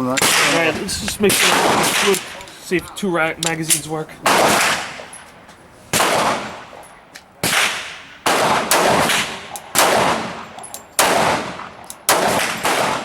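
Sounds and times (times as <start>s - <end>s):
pistol shots with echo: 0.2s - 2.4s, 4.2s - 5.2s, 6.0s - 6.8s, 7.4s - 13.0s.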